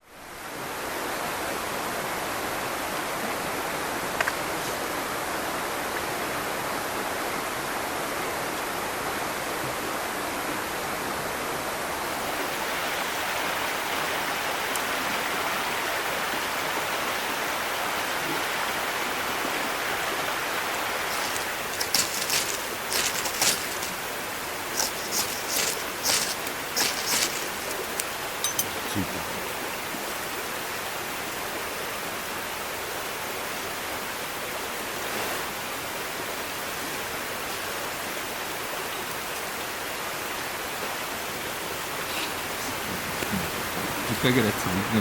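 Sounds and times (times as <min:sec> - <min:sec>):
steady rushing hiss: 0:20.8 - 0:28.4.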